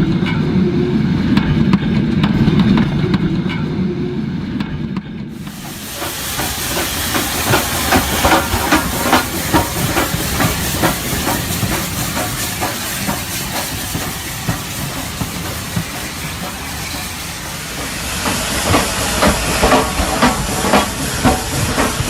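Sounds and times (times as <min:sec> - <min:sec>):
steam locomotive hissing and chuffing: 0:00.0 - 0:22.0.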